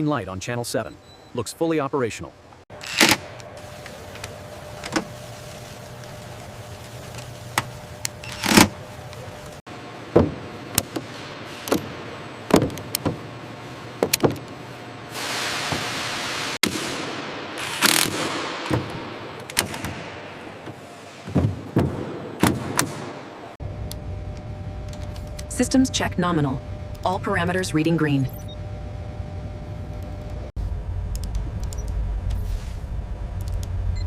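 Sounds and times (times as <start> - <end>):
steady machine hum: 2.4 - 15.2, 16.2 - 34.0
hissing air burst: 15.1 - 16.6.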